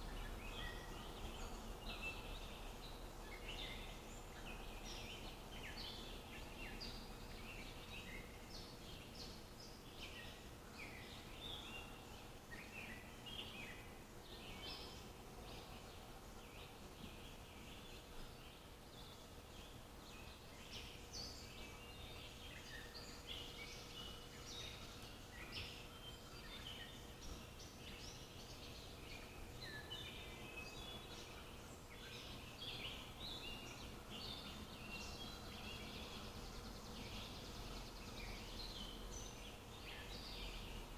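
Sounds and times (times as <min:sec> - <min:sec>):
faint steady hiss: 0:00.0 - 0:40.9
songbirds chirping and twittering: 0:00.0 - 0:40.9.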